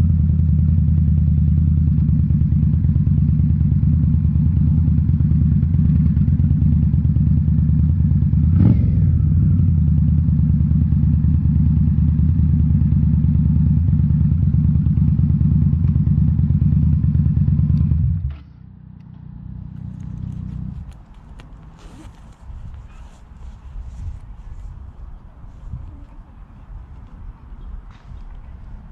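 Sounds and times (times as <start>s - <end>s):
motorcycle engine running: 0.0s - 24.8s.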